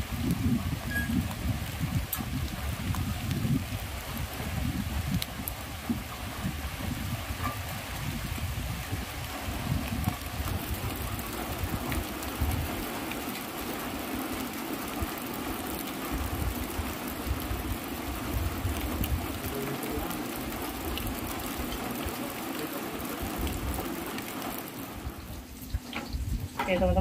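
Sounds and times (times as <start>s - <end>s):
wind buffeting microphone: 0.0s - 13.6s, 14.8s - 27.0s
steady rain: 0.0s - 27.0s.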